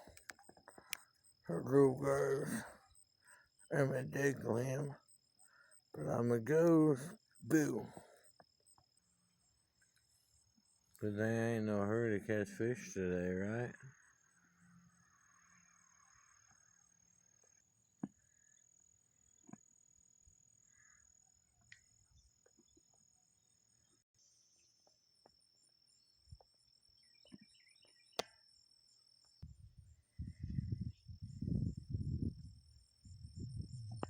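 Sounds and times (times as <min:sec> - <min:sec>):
insects trilling: 0:00.0 - 0:23.2.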